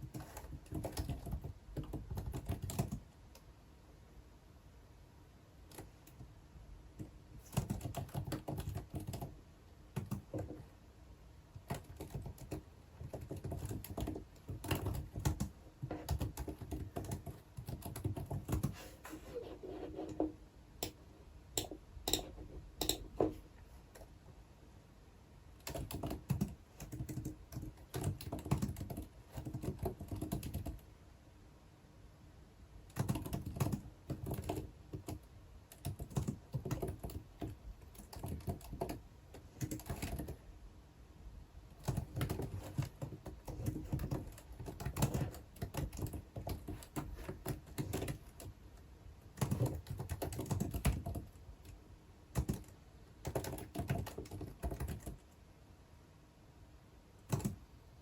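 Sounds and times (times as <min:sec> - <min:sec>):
typing on computer keyboard: 0:00.0 - 0:03.4, 0:05.7 - 0:06.3, 0:07.0 - 0:10.6, 0:11.5 - 0:18.8, 0:20.8 - 0:23.4, 0:25.6 - 0:30.8, 0:32.9 - 0:40.4, 0:41.8 - 0:48.6, 0:49.3 - 0:55.4, 0:57.2 - 0:57.6.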